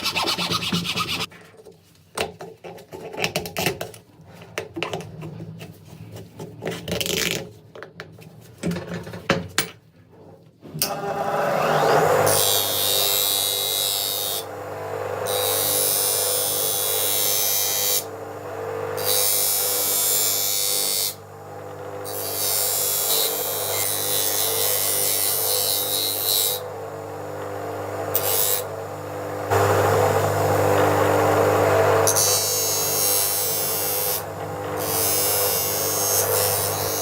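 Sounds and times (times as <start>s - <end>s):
electric power tool running: 10.8s - 37.0s.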